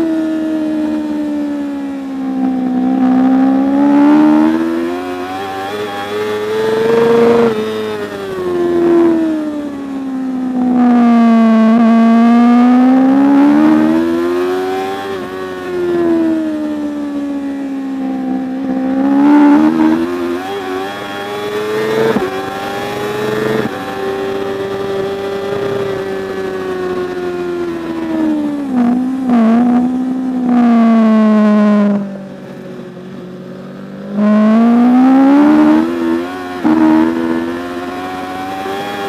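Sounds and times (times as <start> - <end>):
superbike engine revving: 2.4 - 9.2, 10.6 - 16.6, 18.2 - 27.1, 27.7 - 32.1, 34.0 - 39.0.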